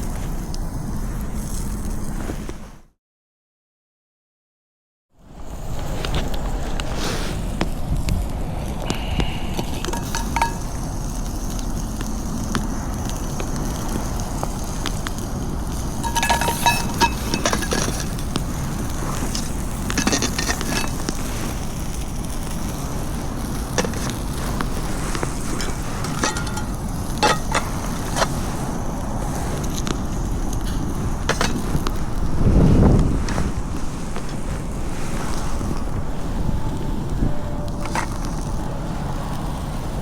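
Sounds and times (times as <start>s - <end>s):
wind on microphone: 5.5s - 40.0s
metal cookware clinking: 9.6s - 11.2s, 16.0s - 18.6s, 19.2s - 21.2s, 23.7s - 28.3s, 31.3s - 31.8s.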